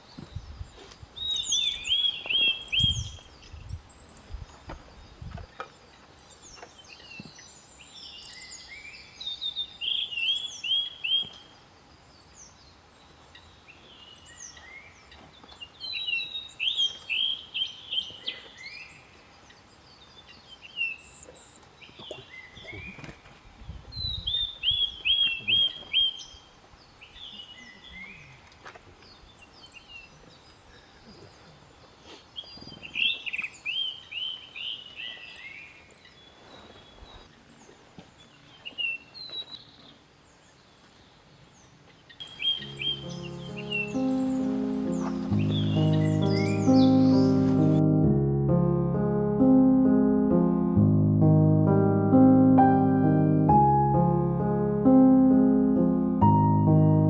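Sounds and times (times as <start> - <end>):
birds calling: 42.2 - 47.9.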